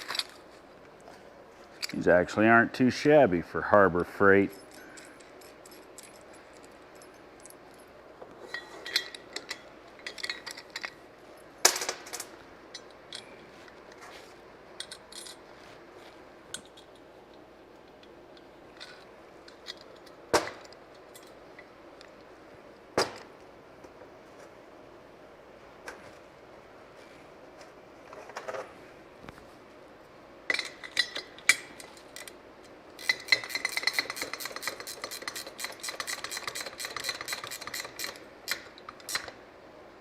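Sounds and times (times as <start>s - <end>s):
metal parts clinking and rattling: 4.5s - 11.0s, 14.8s - 15.5s, 18.7s - 21.7s, 30.5s - 32.4s, 33.0s - 39.4s.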